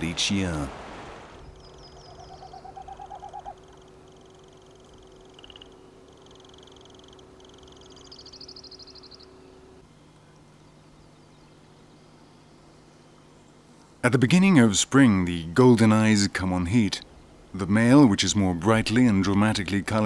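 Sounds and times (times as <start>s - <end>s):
faint steady hum: 0.0s - 20.0s
low pulsed bird call: 1.4s - 13.6s
birds trilling: 1.4s - 13.8s.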